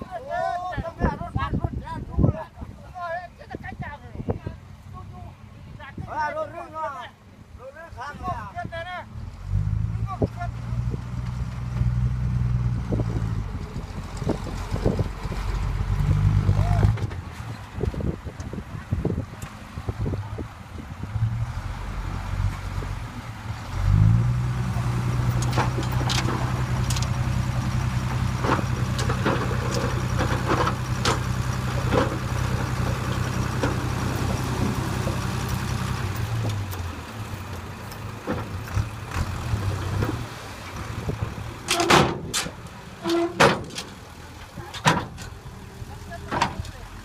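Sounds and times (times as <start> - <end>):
diesel engine revving: 9.1 - 47.0
metal clanks and knocks: 25.3 - 27.2, 28.0 - 32.6, 41.7 - 44.0, 44.6 - 45.4.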